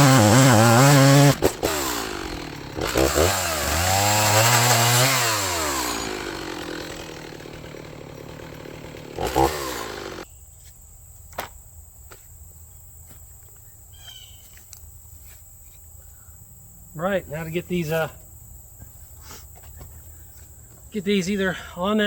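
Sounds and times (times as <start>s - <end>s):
chainsaw revving and idling: 0.0s - 10.3s
faint insect sounds: 10.2s - 22.0s.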